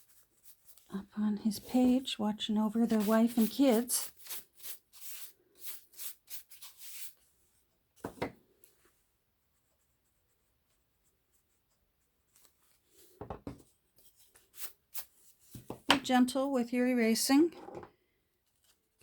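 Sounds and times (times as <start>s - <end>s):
eraser rubbing on paper: 2.7s - 7.2s.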